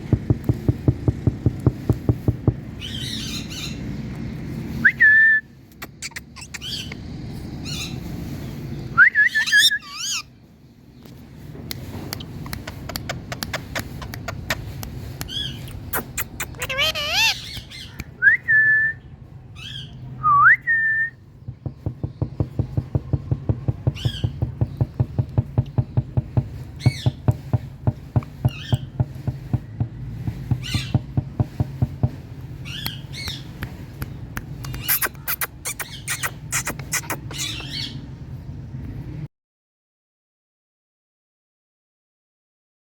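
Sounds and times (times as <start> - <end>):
parakeet whistling and calling: 9.0 - 10.3, 15.3 - 18.0, 34.7 - 38.0.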